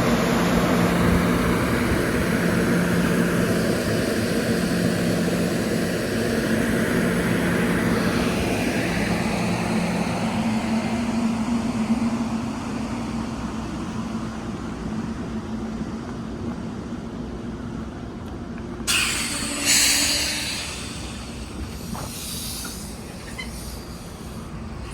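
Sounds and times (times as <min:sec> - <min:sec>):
train running: 0:00.0 - 0:24.9
loud burst of hiss: 0:18.9 - 0:24.9.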